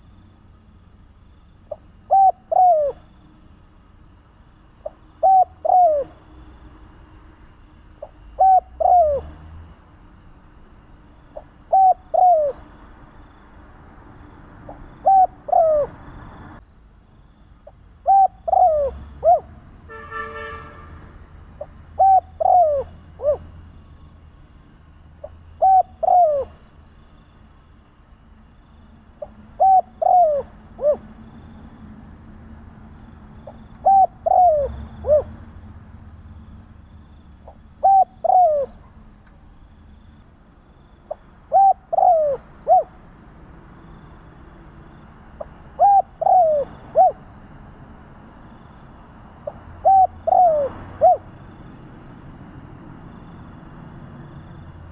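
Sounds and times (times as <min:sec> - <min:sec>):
dove cooing: 0:01.7 - 0:03.1, 0:04.8 - 0:06.2, 0:08.0 - 0:09.4, 0:11.4 - 0:12.7, 0:14.7 - 0:16.0, 0:18.0 - 0:19.6, 0:21.6 - 0:23.5, 0:25.2 - 0:26.6, 0:29.2 - 0:31.1, 0:33.4 - 0:35.4, 0:37.4 - 0:38.9, 0:41.1 - 0:43.0, 0:45.4 - 0:47.4, 0:49.8 - 0:51.3.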